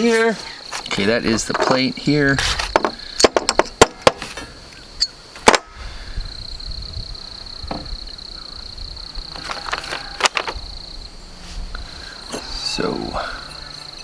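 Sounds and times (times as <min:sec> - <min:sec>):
high-pitched insect drone: 0:05.9 - 0:14.0.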